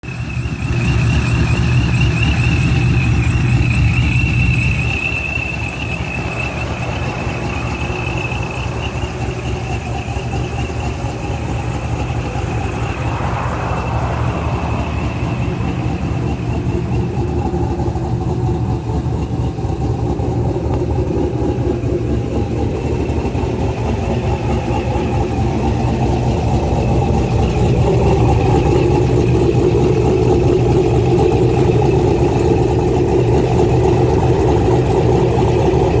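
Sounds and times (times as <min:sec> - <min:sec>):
car engine running: 0:00.0 - 0:36.0
supercharger whine: 0:00.0 - 0:36.0.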